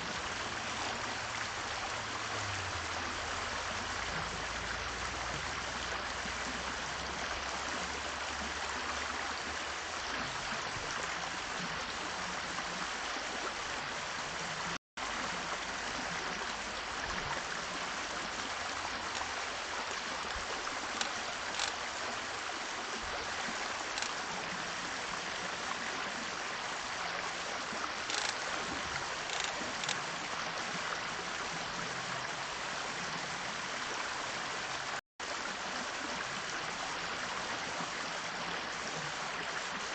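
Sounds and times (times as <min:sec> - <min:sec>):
faint short ticks: 0:21.0 - 0:21.8, 0:28.1 - 0:28.4.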